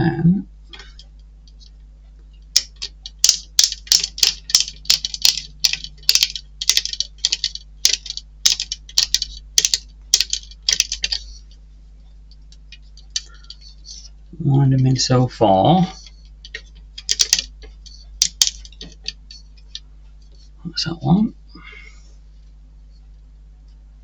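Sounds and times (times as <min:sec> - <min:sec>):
small plastic parts clicking: 0:02.5 - 0:11.6, 0:12.3 - 0:14.1, 0:15.9 - 0:20.4.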